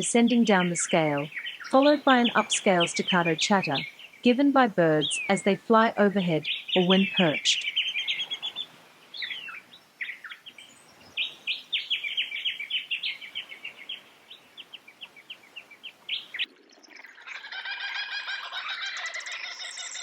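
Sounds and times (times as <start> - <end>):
bird whistling and chattering: 5.0 - 5.6.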